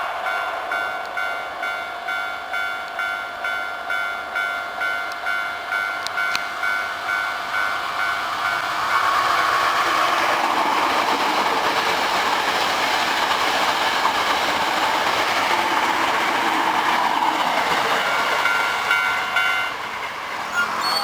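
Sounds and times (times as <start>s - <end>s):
train wheels on rails: 0.0s - 21.0s
crossing alarm bell: 0.2s - 9.0s, 18.0s - 19.8s.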